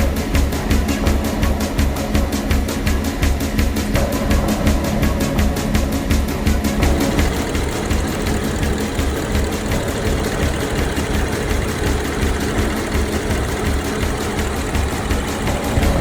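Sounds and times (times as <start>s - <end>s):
car engine idling: 6.7s - 16.0s.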